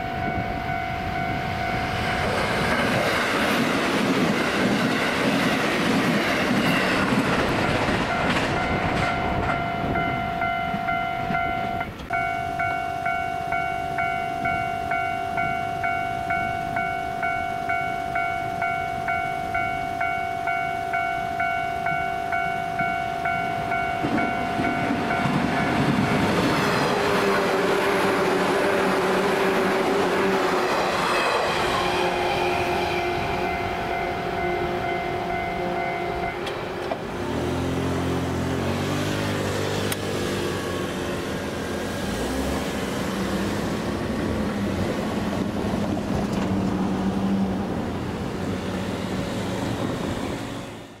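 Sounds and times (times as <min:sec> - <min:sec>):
level crossing bell ringing: 0:00.0 - 0:02.2, 0:07.7 - 0:26.4, 0:32.6 - 0:36.5
electric train rushing past: 0:00.0 - 0:51.0.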